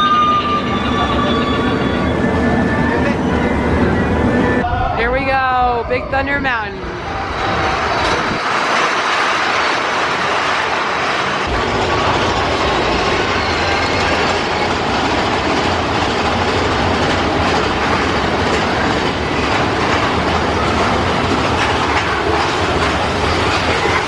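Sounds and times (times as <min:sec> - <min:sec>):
roller coaster wheels clattering: 0:06.8 - 0:24.0.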